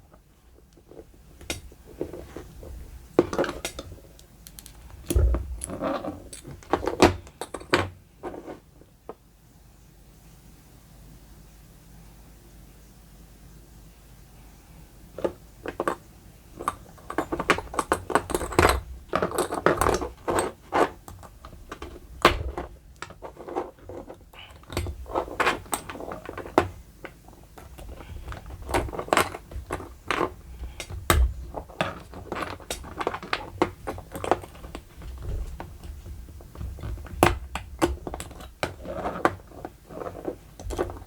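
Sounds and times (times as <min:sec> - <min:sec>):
small parts clicking and scraping: 0:00.7 - 0:08.6, 0:15.2 - 0:41.0.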